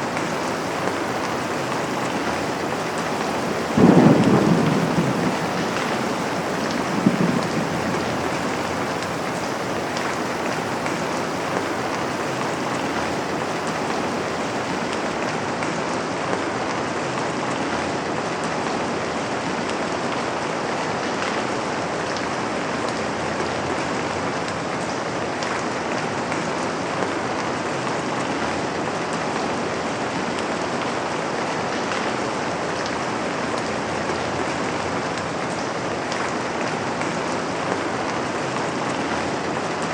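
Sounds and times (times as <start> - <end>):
low rumble of thunder: 0.0 - 15.5
rain falling on a window: 0.0 - 15.7.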